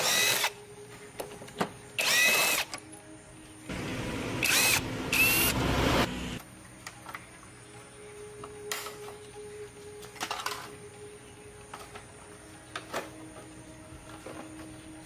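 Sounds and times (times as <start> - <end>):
power tool motor whine: 0.0 - 0.6, 2.0 - 2.7, 3.7 - 6.4.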